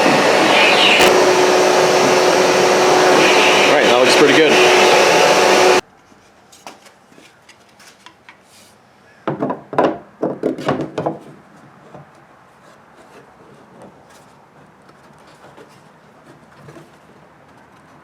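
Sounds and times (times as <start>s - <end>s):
shop vacuum running: 0.0s - 5.8s.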